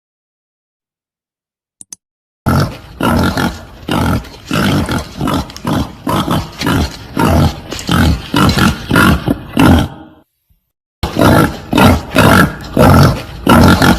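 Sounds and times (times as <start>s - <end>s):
wild boar grunting: 2.5s - 10.3s, 11.0s - 13.9s.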